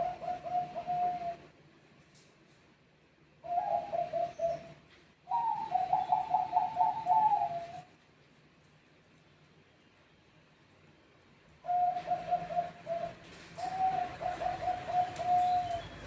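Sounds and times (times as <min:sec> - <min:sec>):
dove cooing: 0:00.0 - 0:01.5, 0:03.4 - 0:07.9, 0:11.6 - 0:16.0.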